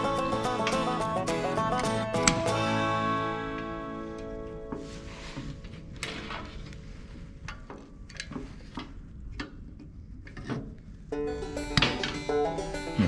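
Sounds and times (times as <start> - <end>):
background music: 0.0 - 6.4, 11.2 - 13.0.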